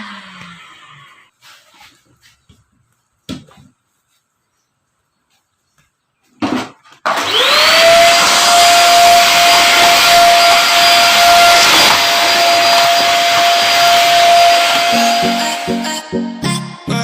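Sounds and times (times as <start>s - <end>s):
vacuum cleaner motor whine: 0.0s - 1.3s, 7.0s - 15.9s.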